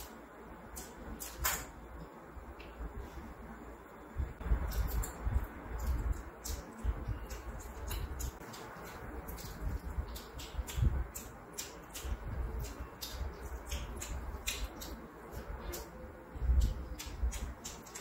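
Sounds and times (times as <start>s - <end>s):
chewing: 5.8s - 16.0s.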